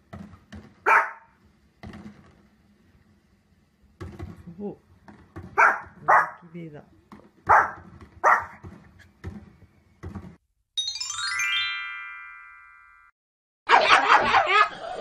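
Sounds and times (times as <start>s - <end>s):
pug yapping rapidly: 0.8s - 1.3s, 5.6s - 6.4s, 7.5s - 8.6s, 13.7s - 14.8s
small dog barking: 0.8s - 1.3s, 5.6s - 6.4s, 7.5s - 8.6s, 13.7s - 14.7s
chime jingle with rising notes: 10.8s - 13.1s.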